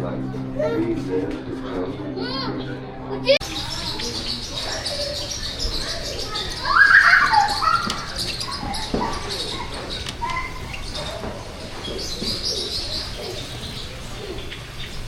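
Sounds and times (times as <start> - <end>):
high bird chirps: 3.4 - 15.0
lower bird calls: 3.4 - 15.0.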